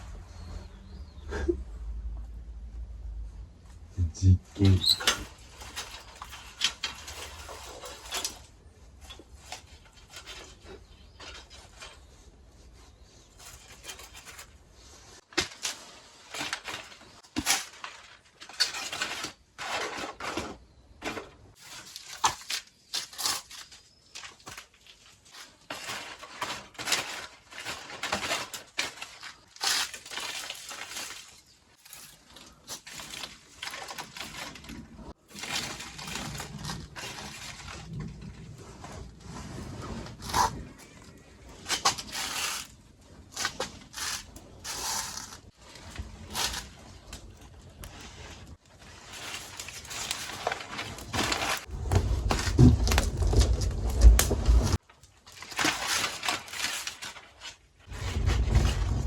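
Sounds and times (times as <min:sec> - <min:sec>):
campfire crackling and crunching: 0:21.5 - 0:59.0.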